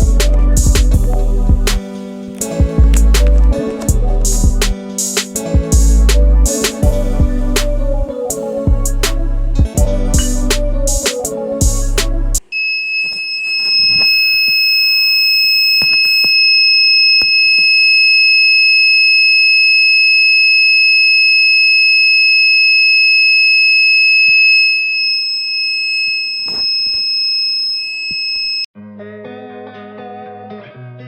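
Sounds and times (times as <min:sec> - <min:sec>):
buzzer high-pitched tone: 0:12.5 - 0:28.7.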